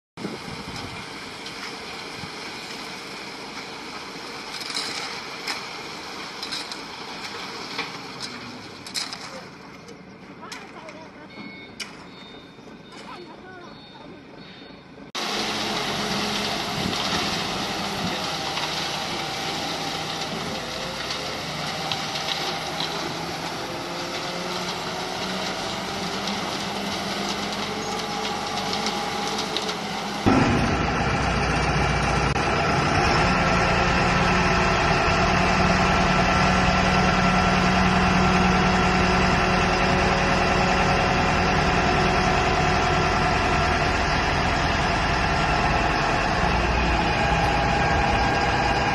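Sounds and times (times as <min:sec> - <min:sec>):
diesel engine idling: 0:15.0 - 0:48.9
deep loud engine sound: 0:15.2 - 0:48.9.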